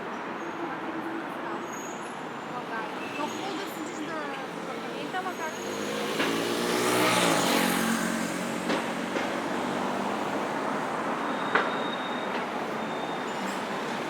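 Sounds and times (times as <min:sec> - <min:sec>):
vehicle passing close: 0:04.6 - 0:11.0.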